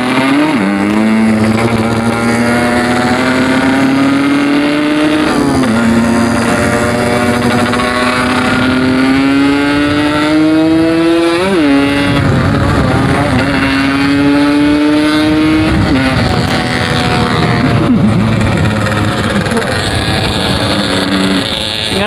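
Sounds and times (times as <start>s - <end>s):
motorcycle engine accelerating: 0.0s - 22.0s
wind and road noise: 0.0s - 22.0s.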